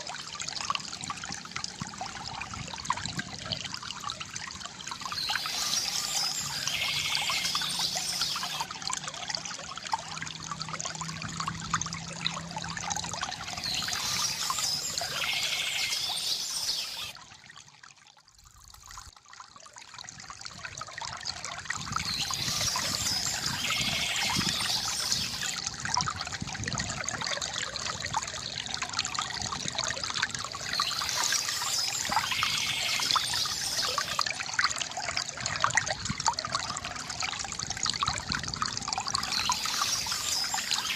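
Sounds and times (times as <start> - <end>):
river water gurgling: 0.0 - 40.9
birds chirping: 5.0 - 8.6, 13.5 - 17.1, 22.1 - 25.6, 30.7 - 34.2, 39.2 - 40.9.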